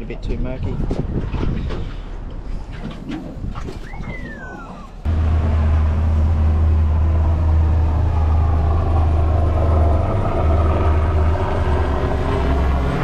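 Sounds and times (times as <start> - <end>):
boat outboard motor droning: 5.1 - 13.0
rushing noise: 5.1 - 13.0.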